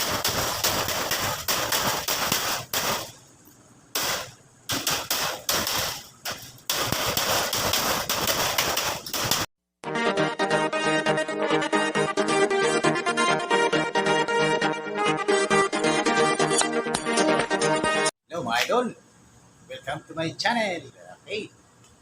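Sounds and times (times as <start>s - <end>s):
rapid banging strikes: 0.0s - 3.2s, 4.0s - 9.5s.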